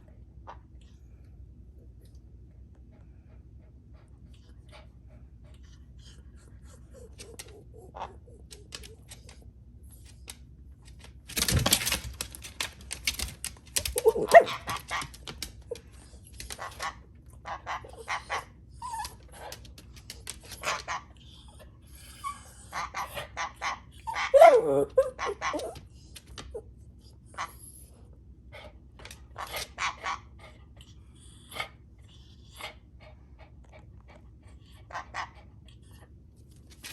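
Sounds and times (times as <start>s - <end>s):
dog whining: 6.1s - 9.4s, 13.8s - 14.8s, 17.8s - 19.7s, 21.4s - 23.2s, 23.8s - 26.7s
dog barking: 14.0s - 14.7s, 24.2s - 25.8s.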